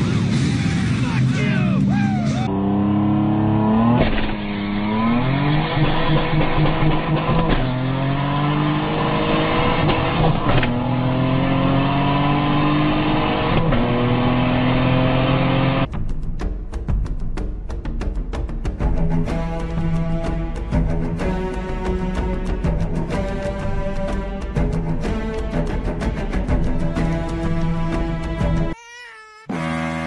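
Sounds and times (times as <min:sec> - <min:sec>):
car engine accelerating through gears: 0:01.9 - 0:15.9.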